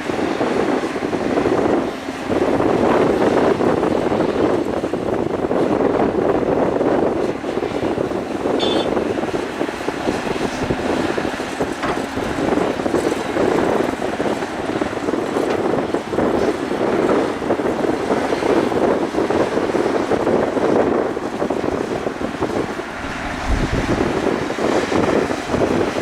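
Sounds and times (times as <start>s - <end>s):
excavator engine running: 0.0s - 26.0s
wind noise on microphone: 0.0s - 26.0s
high-pitched squeak: 8.6s - 8.9s.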